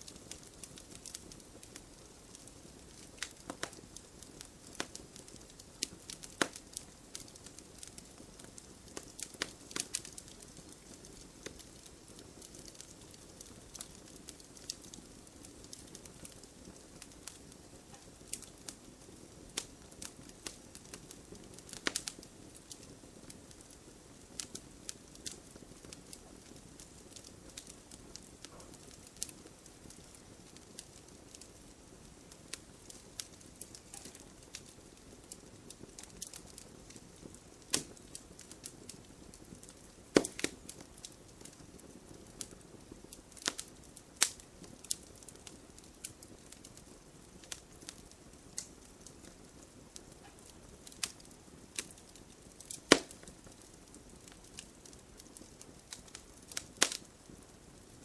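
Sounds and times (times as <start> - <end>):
faint steady hiss: 0.0 - 58.0
wood fire crackling and popping: 0.0 - 58.0.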